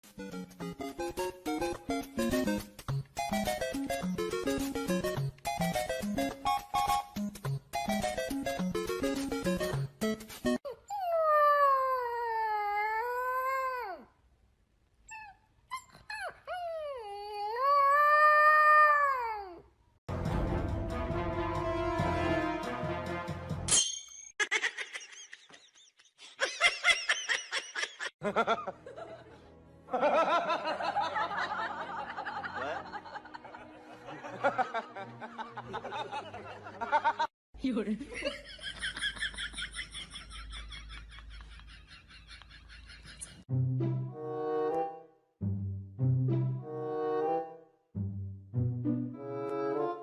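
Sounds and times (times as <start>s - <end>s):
people laughing: 24.5s - 37.3s, 38.1s - 43.4s.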